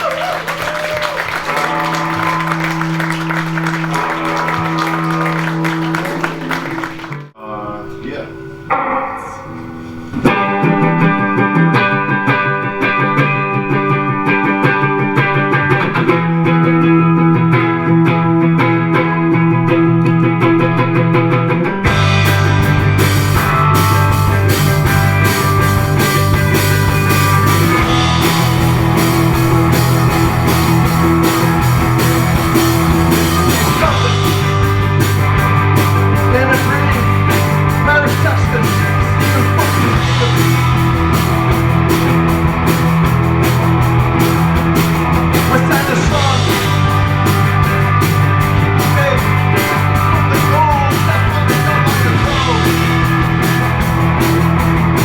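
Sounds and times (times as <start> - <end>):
drum kit beat: 0.0 - 7.3, 21.8 - 55.0
bass line: 0.0 - 55.0
distorted electric guitars: 0.0 - 55.0.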